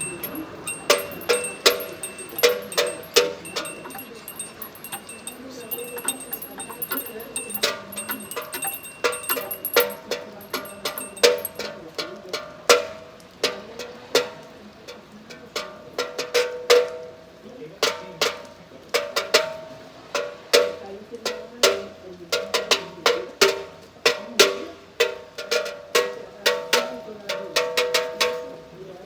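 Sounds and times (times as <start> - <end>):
hand-rung bells: 0.0 - 11.7.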